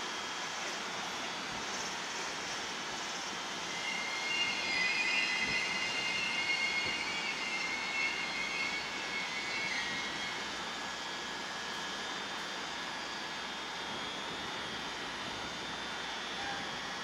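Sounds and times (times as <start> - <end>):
train running noise: 0.1 - 12.7
high wavering squeal: 3.0 - 11.1.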